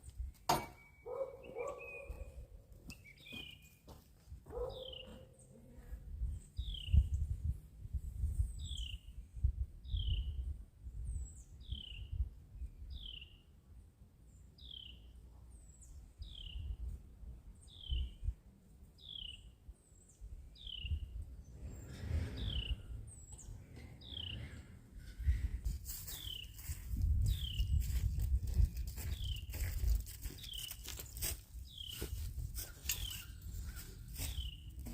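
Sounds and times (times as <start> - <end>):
low uneven rumble: 21.3 - 26.0.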